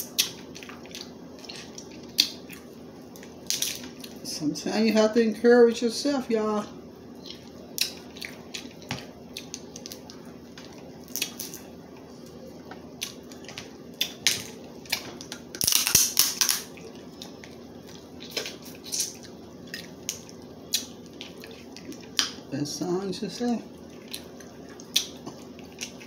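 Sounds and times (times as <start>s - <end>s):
crab shells cracking by hand: 14.0s - 16.8s.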